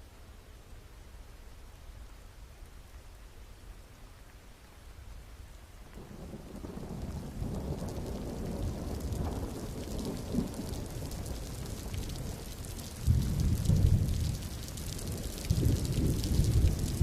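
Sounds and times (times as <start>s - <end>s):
steady rain falling: 0.0s - 17.0s
thunder rumbling: 6.0s - 17.0s.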